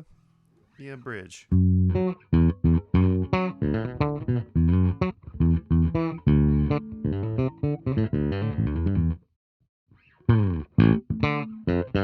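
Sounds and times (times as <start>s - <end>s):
electric bass plucked notes: 1.5s - 9.2s, 10.2s - 12.0s.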